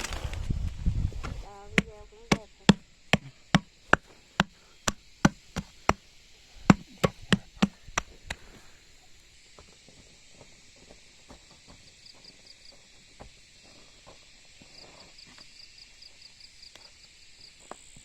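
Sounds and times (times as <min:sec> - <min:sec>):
blade chopping: 0:06.6 - 0:08.4.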